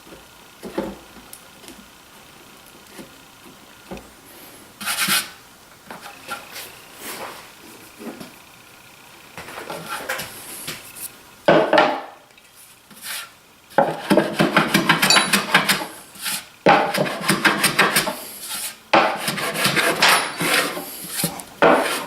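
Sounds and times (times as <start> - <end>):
tools rubbing and scraping wood: 4.8 - 8.2, 9.4 - 11.2, 12.9 - 22.0
clattering of metal and wood: 14.1 - 15.9.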